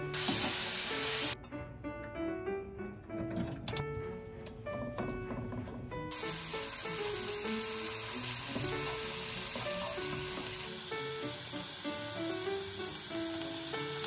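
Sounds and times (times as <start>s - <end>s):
garlic sizzling in oil: 0.0s - 1.4s, 6.1s - 14.0s
background music: 0.0s - 14.0s.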